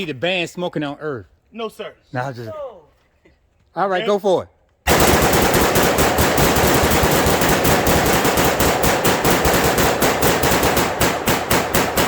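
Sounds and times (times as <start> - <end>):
rapid gunfire: 4.9 - 12.0.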